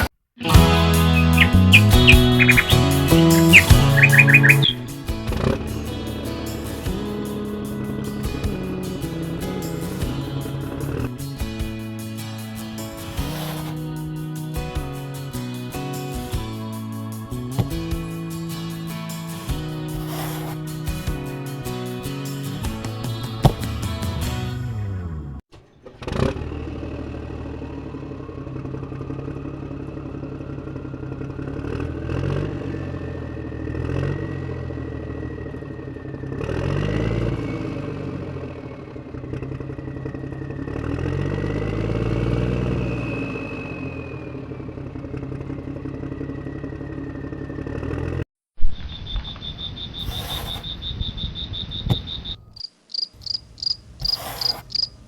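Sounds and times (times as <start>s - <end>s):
small engine revving: 0.0s - 16.6s, 17.2s - 48.3s, 50.0s - 50.6s, 53.2s - 55.0s
crickets trilling: 48.9s - 55.0s.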